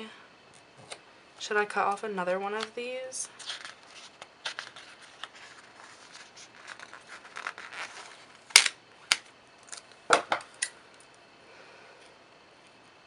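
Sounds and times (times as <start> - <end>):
paper rustling: 3.3 - 8.4.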